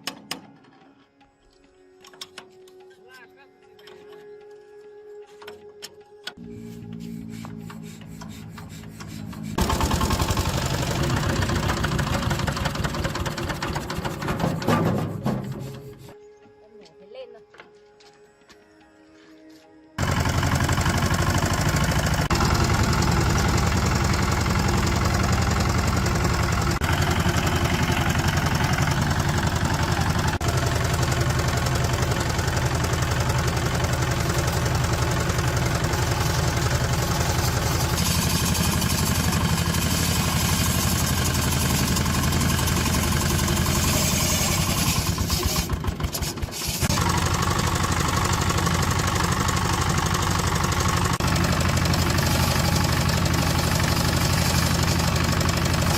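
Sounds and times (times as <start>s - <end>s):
diesel engine knocking: 9.6s - 14.6s, 20.0s - 55.9s.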